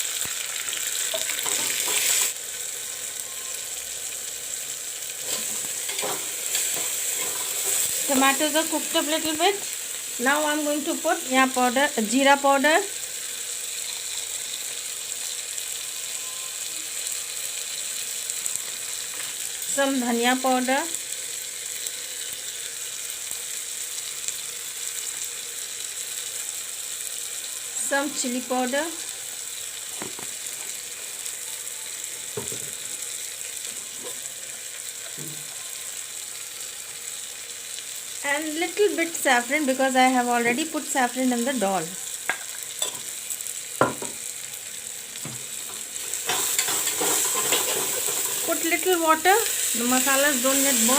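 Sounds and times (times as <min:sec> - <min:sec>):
masala sizzling in oil in a pan: 0:00.0 - 0:50.9
spoon knocking against pan: 0:43.8 - 0:44.2.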